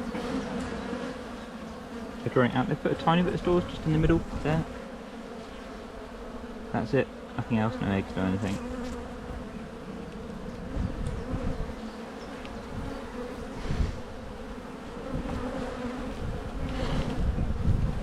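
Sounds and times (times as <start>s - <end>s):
honey bees humming: 0.0s - 18.0s.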